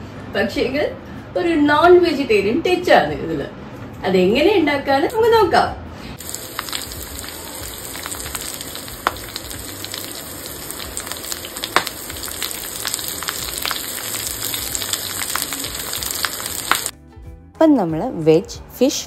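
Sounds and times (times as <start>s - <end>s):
oil sizzling with crackles: 6.2s - 16.9s.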